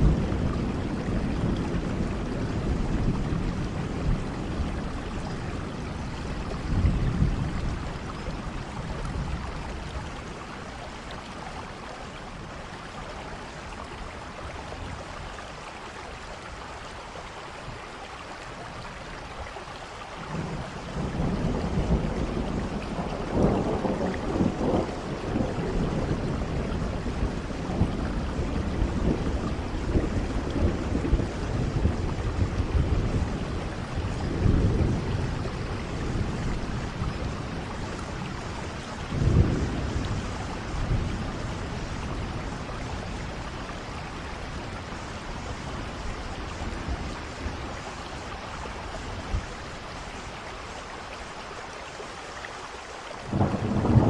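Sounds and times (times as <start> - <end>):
thunder rolling: 0.0 - 9.6, 20.3 - 46.0, 53.3 - 54.0
steady rain: 0.0 - 54.0.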